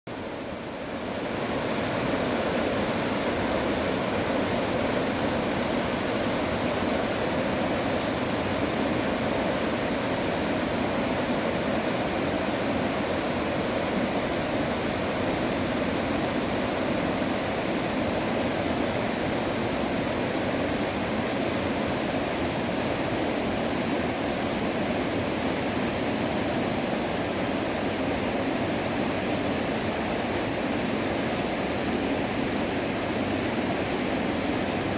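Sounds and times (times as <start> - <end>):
stream water rushing: 0.1 - 34.9.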